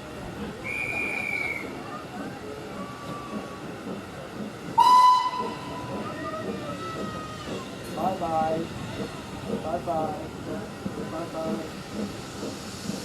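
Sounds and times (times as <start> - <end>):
steam locomotive whistle: 0.6 - 1.7, 4.8 - 5.8
guard's whistle: 0.7 - 1.6
voices chattering: 5.4 - 12.2.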